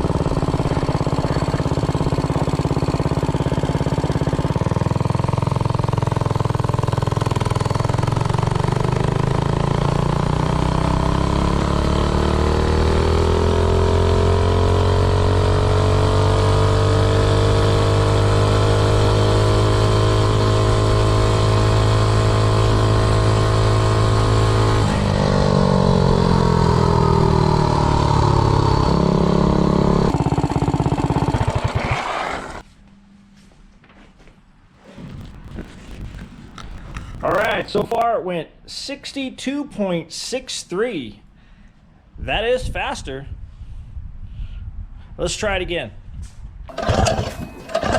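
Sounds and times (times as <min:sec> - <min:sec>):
minibike engine at full throttle: 0:00.0 - 0:32.6, 0:34.8 - 0:38.0, 0:46.7 - 0:47.9.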